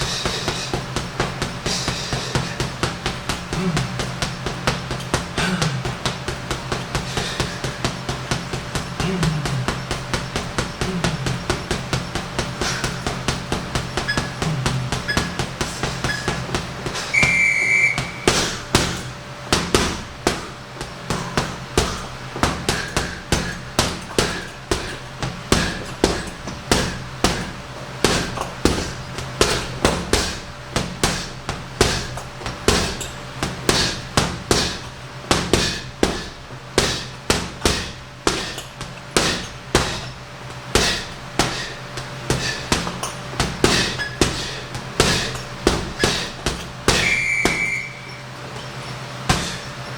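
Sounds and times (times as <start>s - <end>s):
punches on heavy bag: 0.0s - 49.8s
short electronic beep: 17.2s - 18.3s, 47.0s - 48.3s.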